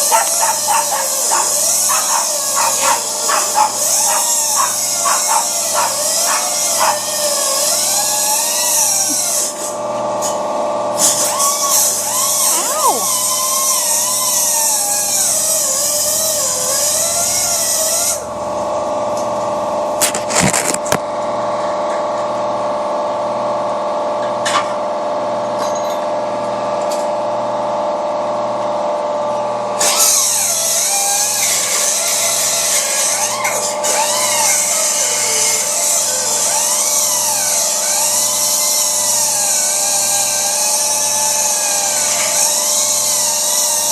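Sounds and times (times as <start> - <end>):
grinder grinding metal hiss: 0.0 - 10.4, 11.0 - 18.3, 29.8 - 43.9
power grinder motor whine: 0.0 - 21.0, 29.7 - 43.9.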